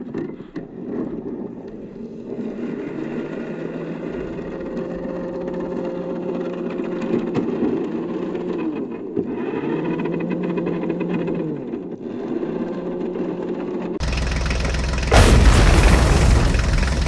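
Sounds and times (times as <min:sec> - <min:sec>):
vehicle engine humming: 0:14.0 - 0:17.0.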